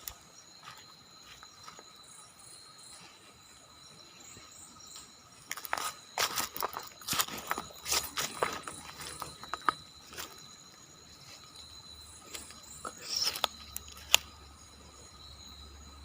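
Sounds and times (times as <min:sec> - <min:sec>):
high insect trill: 0:00.0 - 0:16.0
footsteps on dry ground: 0:05.5 - 0:11.5.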